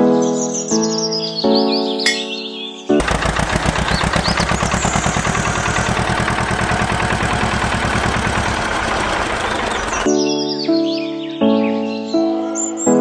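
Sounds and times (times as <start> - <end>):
engine knocking rhythmically: 3.0 - 10.1.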